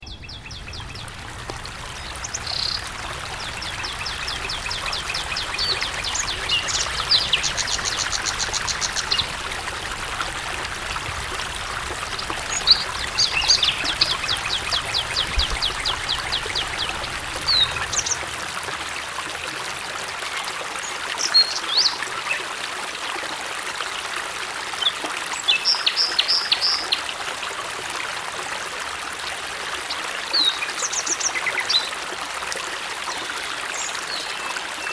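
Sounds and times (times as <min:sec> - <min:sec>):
small birds chirping: 0:00.0 - 0:18.2
stream water running: 0:00.0 - 0:34.9.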